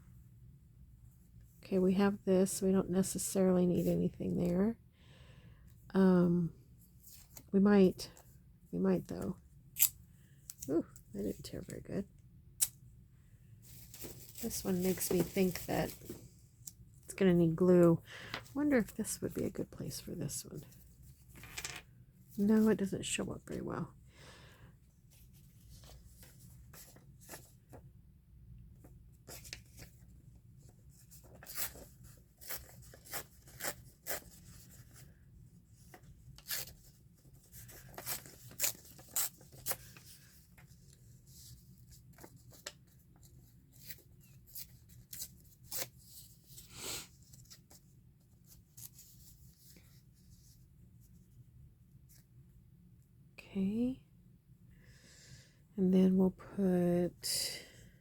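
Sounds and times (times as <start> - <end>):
low steady hum: 0.0 - 58.0
paper and craft supplies handled: 13.6 - 16.8, 28.8 - 51.1.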